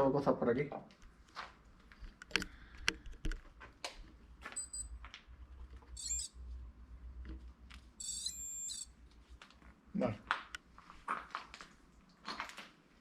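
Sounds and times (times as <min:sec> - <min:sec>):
high electronic chirps: 0:04.6 - 0:04.9, 0:06.0 - 0:06.3, 0:08.0 - 0:08.9
warbling high alarm tone: 0:04.6 - 0:04.9, 0:06.0 - 0:06.3, 0:08.0 - 0:08.9
fast warbling beep: 0:06.0 - 0:06.3, 0:08.0 - 0:08.9.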